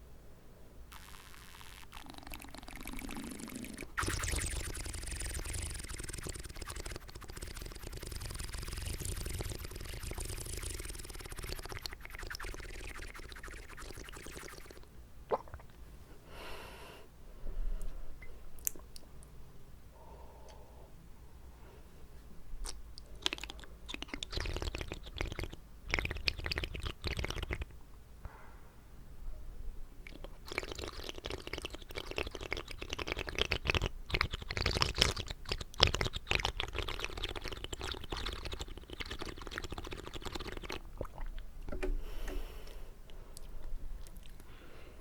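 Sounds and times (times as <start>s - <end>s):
wet mouth clicking and smacking: 0.9s - 15.7s, 18.6s - 19.1s, 22.6s - 27.7s, 30.0s - 41.8s, 43.4s - 44.5s.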